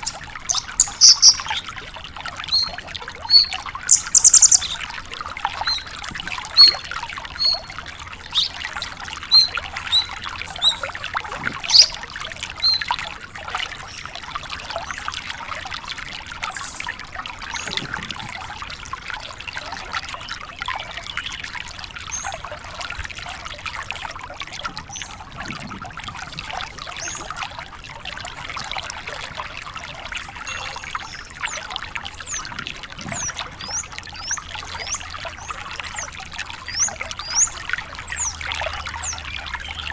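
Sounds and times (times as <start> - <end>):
bird twittering song: 0.0 - 1.7, 2.5 - 12.0, 12.6 - 13.0, 16.4 - 17.8, 30.4 - 39.9.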